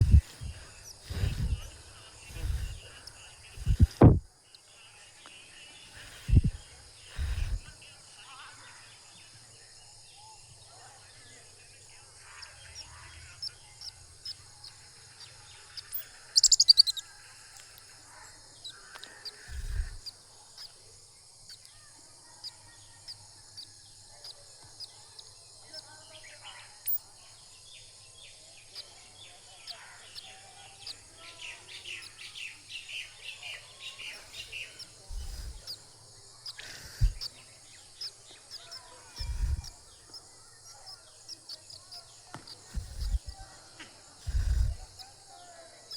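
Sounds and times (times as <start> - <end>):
low thumps: 0.0 - 3.0, 3.6 - 4.2, 6.1 - 6.6
steady high hiss: 0.0 - 4.2, 4.8 - 8.0, 30.1 - 45.9
birds chirping: 0.0 - 45.9
low thump: 3.7 - 4.2.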